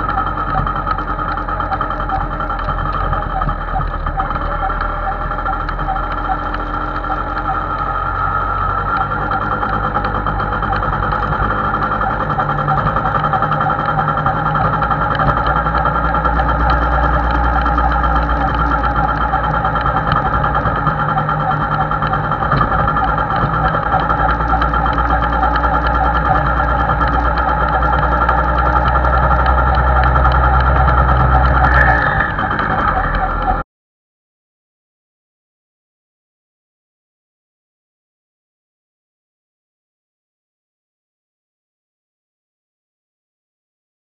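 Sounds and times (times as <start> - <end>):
two-stroke motorcycle engine running: 0.0 - 33.6.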